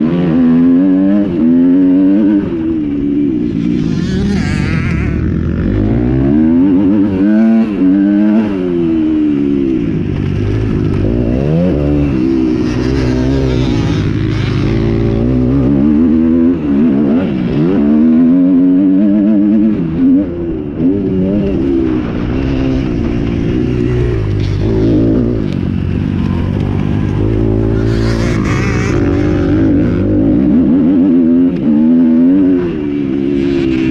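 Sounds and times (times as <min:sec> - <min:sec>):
motocross bike engines revving: 0:00.0 - 0:33.9.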